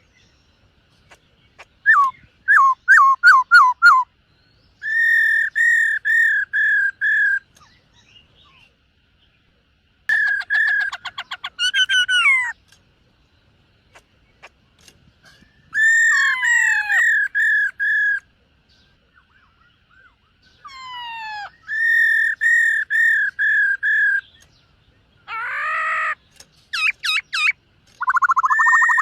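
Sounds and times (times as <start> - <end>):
bird singing whistled phrases: 1.8 - 4.1, 4.8 - 8.2, 15.5 - 18.2, 19.2 - 24.5, 26.8 - 29.0.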